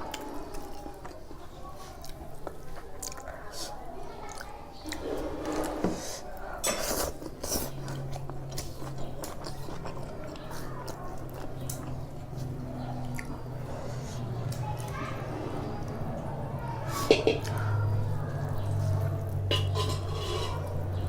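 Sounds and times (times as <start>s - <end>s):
chewing and eating mouth noises: 0.0s - 21.0s
dishes clinking: 17.0s - 17.6s, 19.4s - 20.9s.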